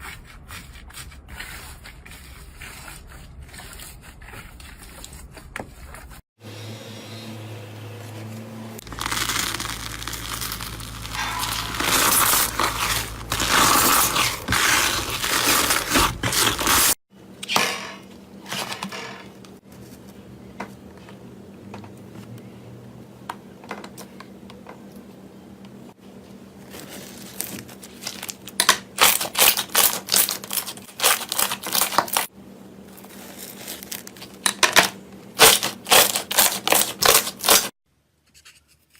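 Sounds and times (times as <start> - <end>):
slime crunching and crackling: 8.8 - 17.0, 26.7 - 32.3, 33.0 - 34.4, 35.4 - 37.7.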